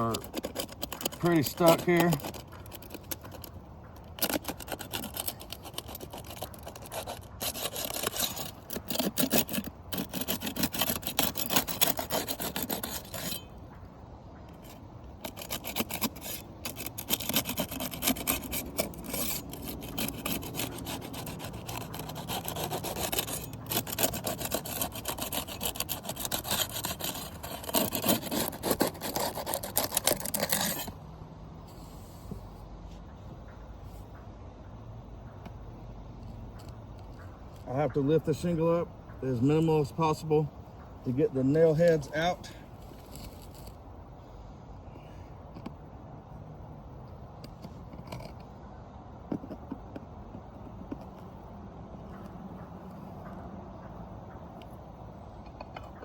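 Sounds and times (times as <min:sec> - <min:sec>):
tool scraping roof shingles: 0:00.0 - 0:13.6, 0:14.5 - 0:31.0, 0:36.5 - 0:43.8.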